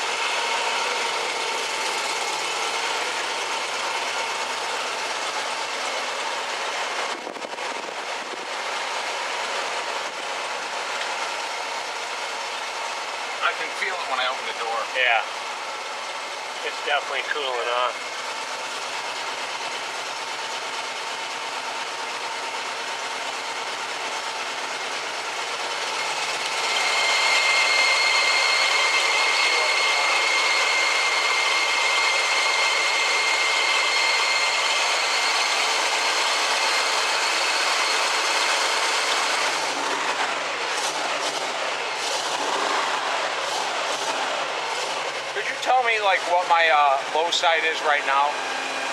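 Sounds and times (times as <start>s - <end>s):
car engine running: 0.0s - 48.9s
high whine: 25.6s - 48.9s.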